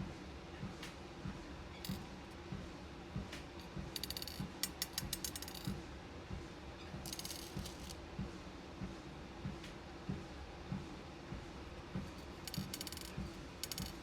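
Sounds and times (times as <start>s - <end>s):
beads clicking and rattling: 4.0s - 5.8s, 7.1s - 8.0s, 12.2s - 14.0s.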